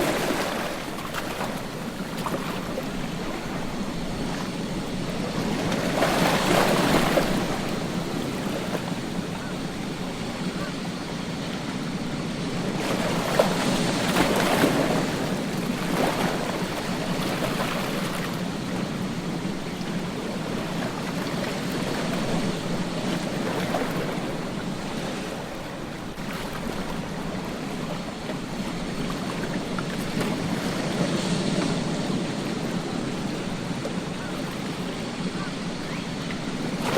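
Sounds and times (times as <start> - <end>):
ocean waves breaking on beach: 0.0 - 36.9.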